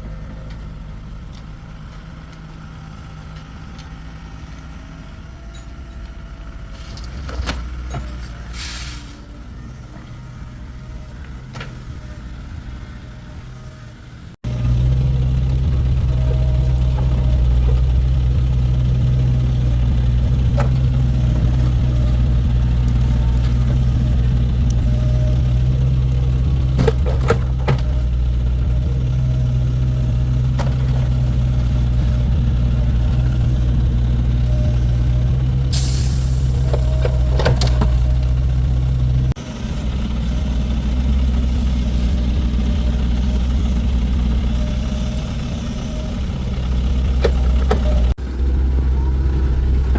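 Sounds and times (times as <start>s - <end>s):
engine idling: 14.4s - 49.9s.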